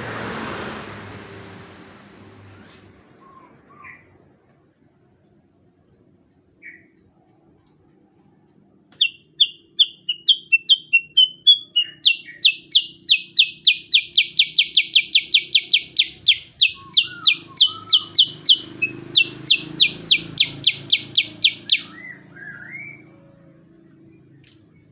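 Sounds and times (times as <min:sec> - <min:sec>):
bulbul singing whistled notes: 0:09.0 - 0:23.3.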